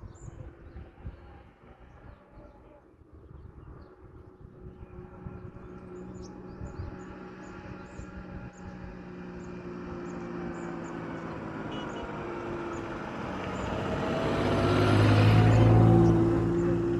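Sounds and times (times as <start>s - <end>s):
motor engine humming: 5.3s - 16.9s.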